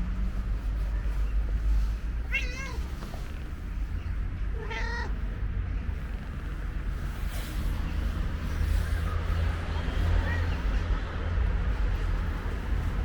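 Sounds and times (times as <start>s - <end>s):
steady low rumble: 0.0s - 13.0s
cat meowing: 2.3s - 2.9s, 4.5s - 5.2s.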